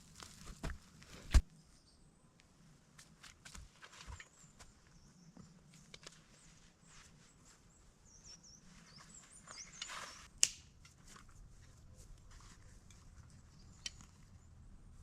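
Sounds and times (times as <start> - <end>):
footsteps on forest floor: 0.0 - 1.5
small bird chirping: 7.7 - 10.3
twig snapping: 10.4 - 10.7.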